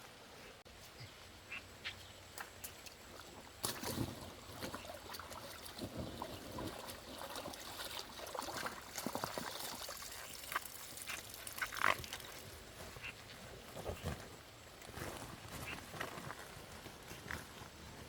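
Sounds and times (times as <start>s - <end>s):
shallow water splashing: 3.2s - 12.5s.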